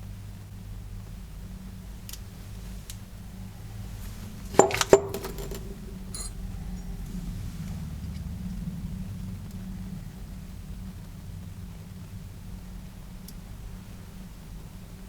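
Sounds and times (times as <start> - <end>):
metal parts clinking: 4.5 - 6.3.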